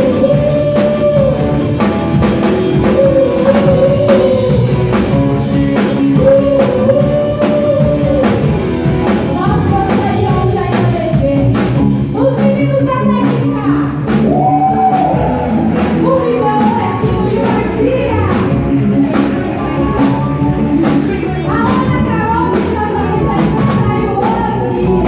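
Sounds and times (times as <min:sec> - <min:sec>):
singer holding long notes: 0:00.0 - 0:11.3
live rock band playing: 0:00.0 - 0:25.0
steady drum beat: 0:00.0 - 0:25.0.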